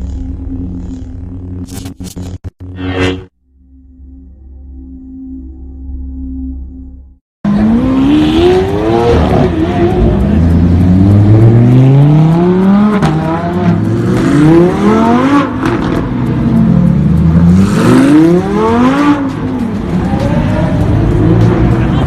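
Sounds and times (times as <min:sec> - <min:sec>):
car engine accelerating: 0:07.5 - 0:22.0.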